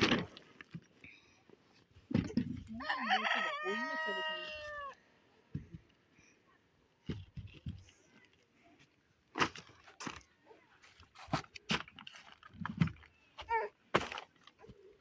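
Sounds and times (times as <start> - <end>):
rooster crowing: 2.8 - 5.0
crunching handling sounds: 7.0 - 15.0.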